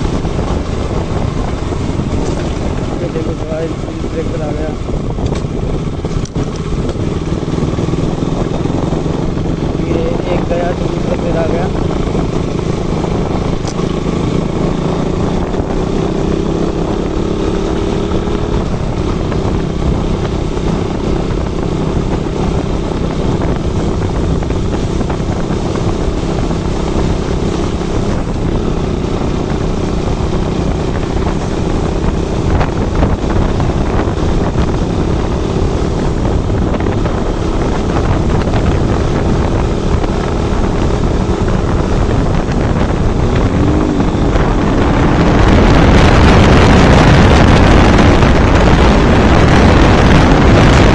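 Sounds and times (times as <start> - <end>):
motorcycle engine running: 0.0 - 50.9
wind rumble on microphone: 0.0 - 50.9.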